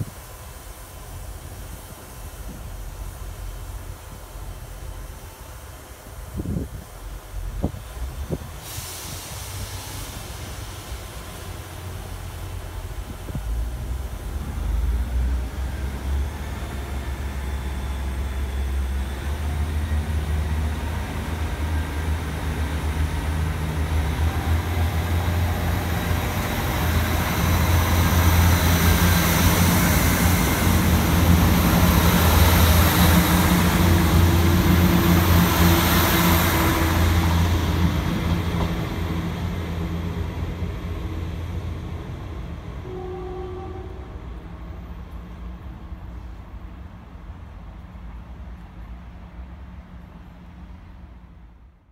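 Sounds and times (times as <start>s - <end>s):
diesel train engine: 0.0s - 51.9s.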